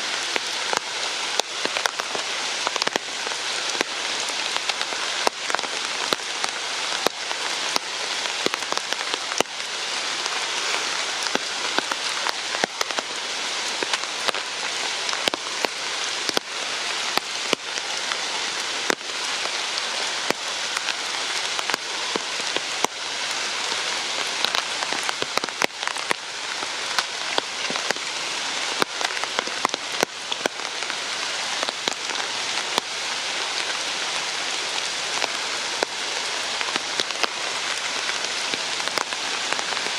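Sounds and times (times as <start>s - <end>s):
rain falling: 0.0s - 39.9s
raindrops hitting a surface: 0.0s - 39.9s.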